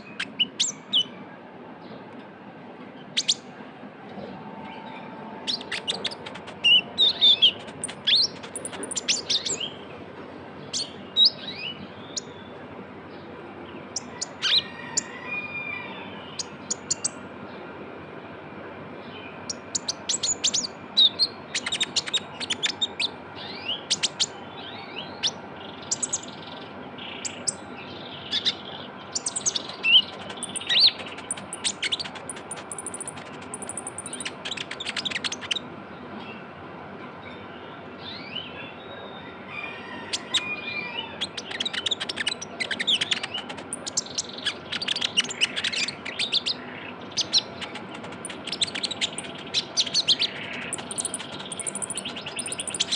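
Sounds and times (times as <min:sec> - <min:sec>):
sunbird singing high chattering trills: 0:00.0 - 0:01.2, 0:04.7 - 0:09.9, 0:16.2 - 0:17.2, 0:19.0 - 0:36.4, 0:40.1 - 0:52.9.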